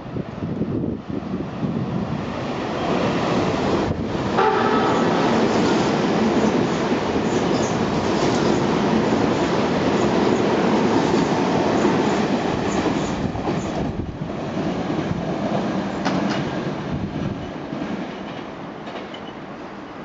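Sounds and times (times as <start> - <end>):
train passing at speed: 0.0 - 20.0.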